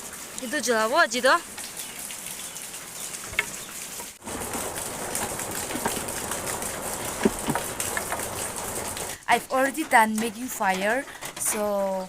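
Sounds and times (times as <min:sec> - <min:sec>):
heavy rain falling: 0:00.0 - 0:11.5.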